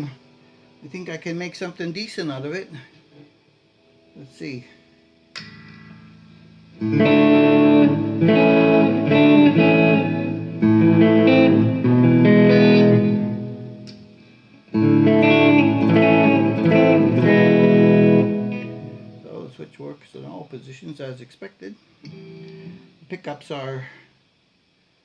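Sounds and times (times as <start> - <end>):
electric guitar strummed chords: 5.2 - 19.6, 22.1 - 22.9.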